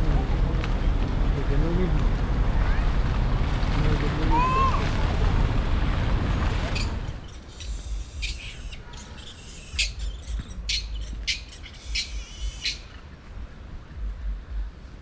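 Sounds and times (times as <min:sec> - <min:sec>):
low rumble: 0:00.0 - 0:15.0
birds giving harsh calls: 0:06.7 - 0:13.2.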